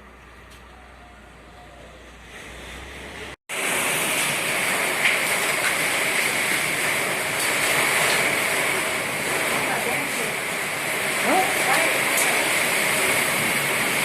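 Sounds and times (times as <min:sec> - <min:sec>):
heavy rain pouring: 0:03.2 - 0:14.0.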